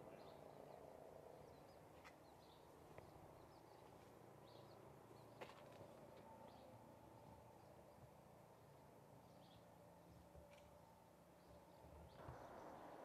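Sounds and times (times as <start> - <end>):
faint bird chirps: 11.4 - 13.0.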